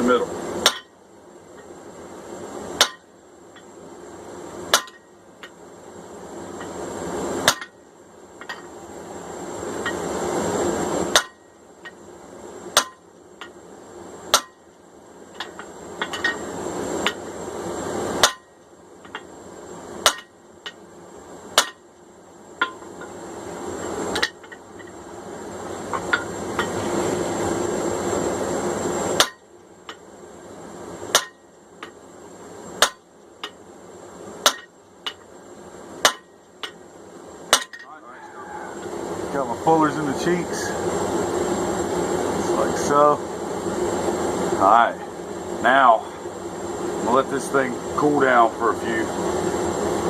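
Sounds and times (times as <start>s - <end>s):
hammer striking hot steel: 0.0s - 1.0s, 2.8s - 3.7s, 4.7s - 5.6s, 7.4s - 7.8s, 8.4s - 8.7s, 11.0s - 12.1s, 12.7s - 13.6s, 14.3s - 16.4s, 17.0s - 17.3s, 18.2s - 19.3s, 20.0s - 20.8s, 21.5s - 21.9s, 22.6s - 23.2s, 23.8s - 25.0s, 29.1s - 30.0s, 31.1s - 32.0s, 32.8s - 33.6s, 34.4s - 35.3s, 36.0s - 36.8s, 37.5s - 38.0s.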